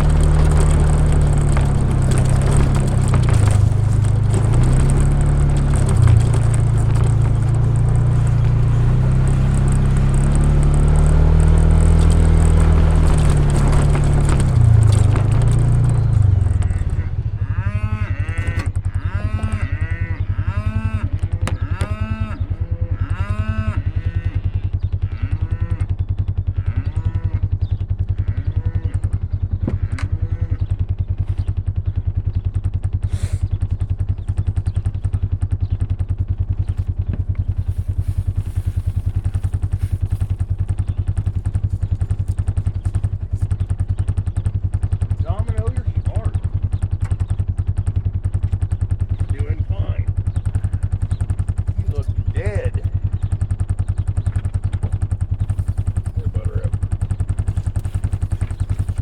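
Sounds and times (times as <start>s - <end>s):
cattle bawling: 0.0s - 24.4s
vehicle engine running: 0.0s - 59.0s.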